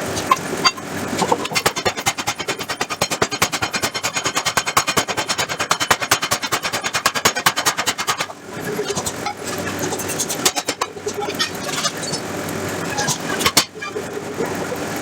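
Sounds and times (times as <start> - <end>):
power hammer striking steel: 0.2 - 8.3.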